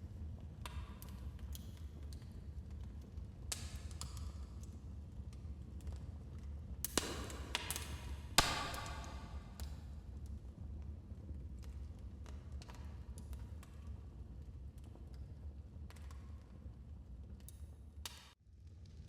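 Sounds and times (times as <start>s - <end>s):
fire crackling in a fireplace: 0.0s - 19.0s
loud pop from fire: 6.9s - 9.5s.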